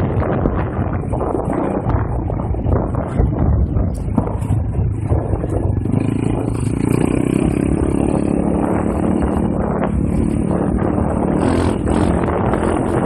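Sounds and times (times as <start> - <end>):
small motorcycle engine running: 0.0 - 13.0
wind buffeting microphone: 0.0 - 13.0.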